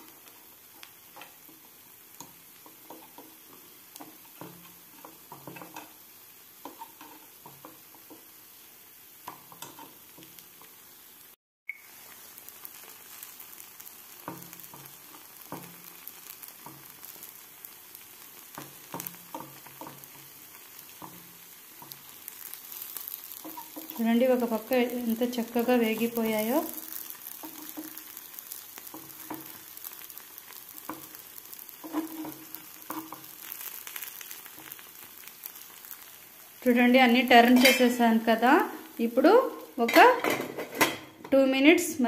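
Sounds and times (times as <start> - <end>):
batter sizzling in oil: 0.0 - 42.0
metal fork tapping and scraping pan: 1.1 - 6.0, 6.6 - 8.2, 9.2 - 10.4, 14.2 - 16.9, 18.5 - 20.3, 22.7 - 24.0, 27.0 - 29.6, 30.8 - 31.2, 31.8 - 34.8, 37.5 - 38.0.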